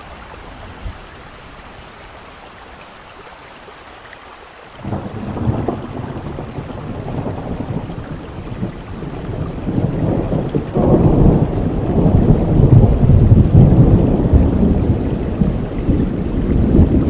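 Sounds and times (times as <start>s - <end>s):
steady rain: 0.0s - 17.0s
low roll of thunder: 4.8s - 17.0s.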